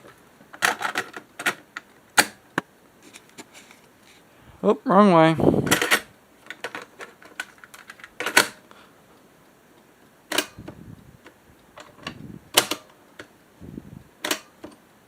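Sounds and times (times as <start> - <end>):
cassette deck plastic clicks: 0.0 - 2.7, 5.7 - 8.6, 10.3 - 13.4, 14.2 - 14.8.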